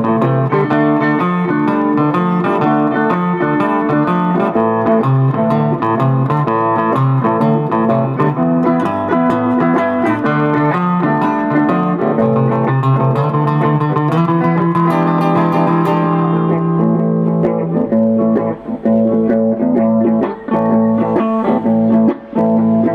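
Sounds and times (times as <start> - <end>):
bass line: 0.0 - 22.9
blues guitar: 0.0 - 22.9.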